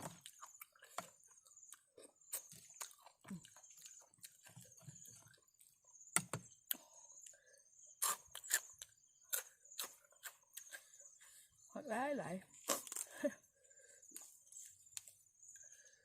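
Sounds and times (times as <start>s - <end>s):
person chewing crunchy food: 0.0s - 5.8s, 8.0s - 11.1s.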